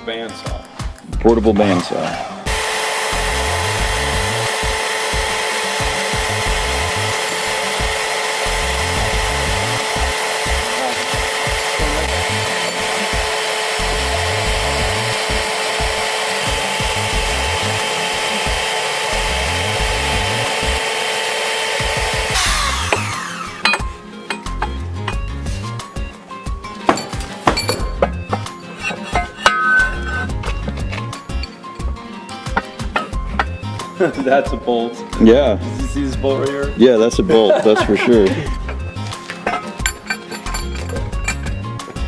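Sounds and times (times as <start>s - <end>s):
bandsaw cutting steel pipe: 1.6s - 26.1s, 26.7s - 34.3s, 37.3s - 42.0s
metallic clinks: 22.9s - 25.7s, 31.0s - 31.9s, 38.5s - 42.0s.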